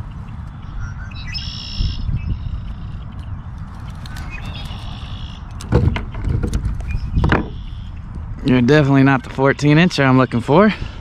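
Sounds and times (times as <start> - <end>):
wind rumble on microphone: 0.0 - 11.0
bird ringing calls: 0.2 - 3.4, 4.1 - 6.0, 6.8 - 8.1
sharp knocks on plastic kayak: 5.6 - 7.6.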